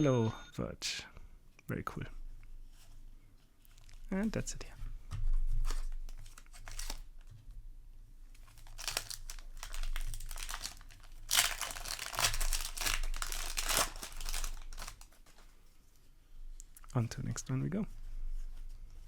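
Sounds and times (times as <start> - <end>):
foil wrapper crinkling and tearing: 5.6 - 7.2, 8.4 - 15.4.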